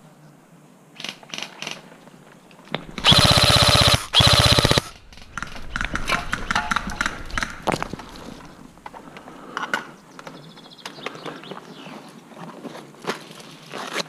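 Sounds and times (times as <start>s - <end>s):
airsoft rifle full-auto bursts: 3.0s - 5.5s
footsteps and gear on gravel: 4.9s - 14.0s.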